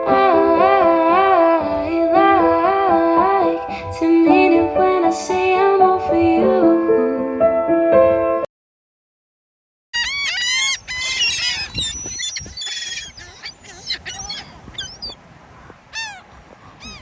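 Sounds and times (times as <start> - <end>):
flock of birds calling: 10.0 - 17.0.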